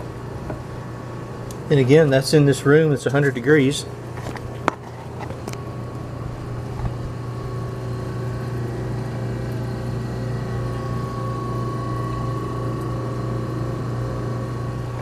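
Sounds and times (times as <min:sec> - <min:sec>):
refrigerator compressor humming: 0:00.0 - 0:15.0.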